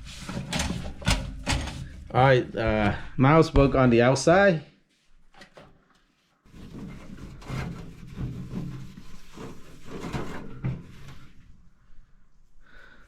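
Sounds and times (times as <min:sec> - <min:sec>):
hand scrubbing toaster oven casing: 0:00.0 - 0:02.1, 0:06.5 - 0:11.2.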